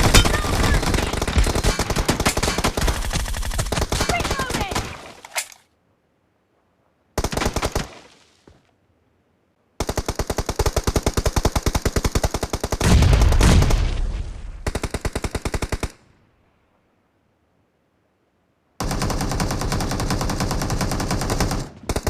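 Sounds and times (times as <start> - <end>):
video game automatic gunfire: 0.0 - 5.0.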